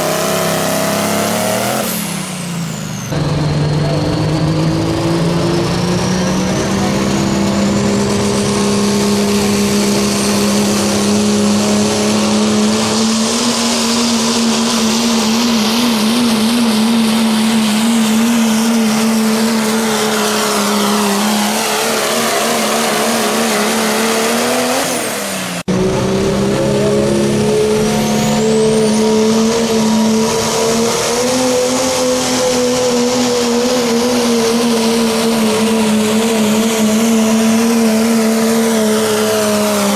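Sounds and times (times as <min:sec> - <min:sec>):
diesel truck engine at full power: 0:00.0 - 0:39.9
turbo whistle sweeping down: 0:09.2 - 0:35.0.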